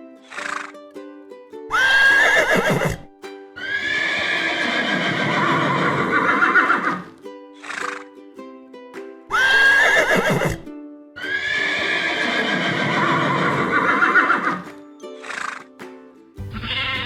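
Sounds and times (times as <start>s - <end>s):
background music: 0.0s - 17.0s
horse whinnying: 1.7s - 8.0s, 9.4s - 10.6s, 11.2s - 14.6s, 16.5s - 17.0s.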